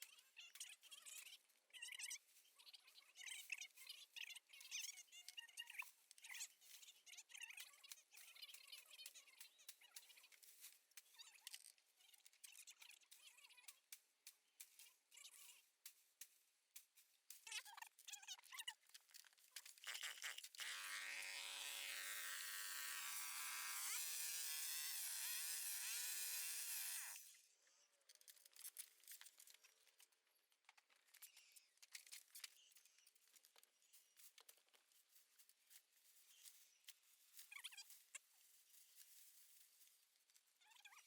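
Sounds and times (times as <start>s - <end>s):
power tool motor running: 20.5s - 27.2s
rustling: 28.2s - 41.0s.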